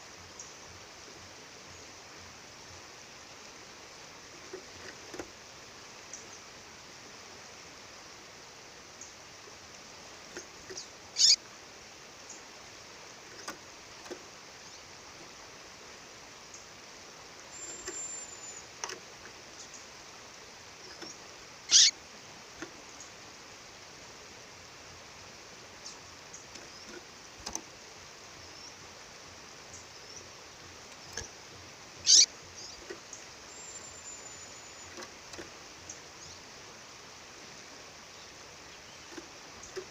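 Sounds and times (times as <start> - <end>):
faint bird chips: 10.4 - 11.4, 20.9 - 22.0, 32.0 - 35.4
songbird calling: 10.4 - 11.5, 17.5 - 18.9, 20.8 - 22.0, 32.0 - 36.5.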